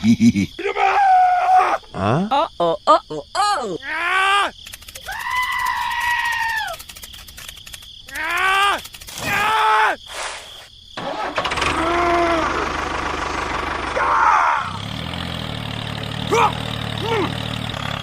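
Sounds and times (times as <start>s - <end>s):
vehicle engine humming: 11.0s - 18.0s.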